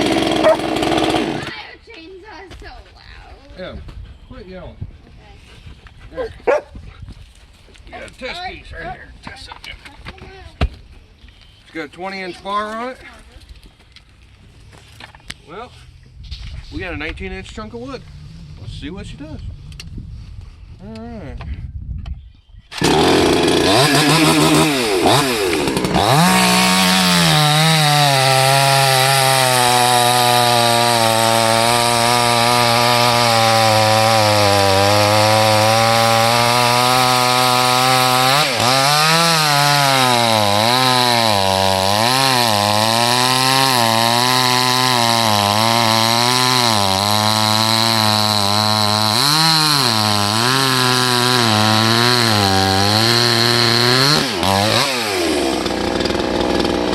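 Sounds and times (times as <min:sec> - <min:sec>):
chainsaw cutting log: 0:00.0 - 0:01.7, 0:22.7 - 0:56.9.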